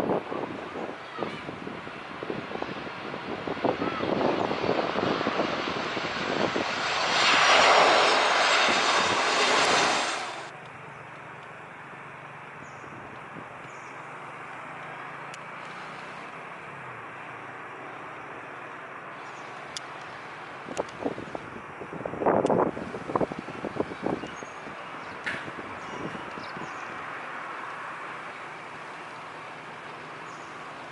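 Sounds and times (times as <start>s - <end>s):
jet airliner passing overhead: 0.0s - 10.6s, 17.7s - 30.9s.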